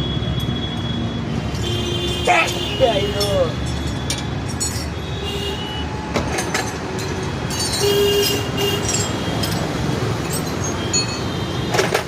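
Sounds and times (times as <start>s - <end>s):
clinks and knocks: 1.4s - 5.0s, 6.1s - 12.0s.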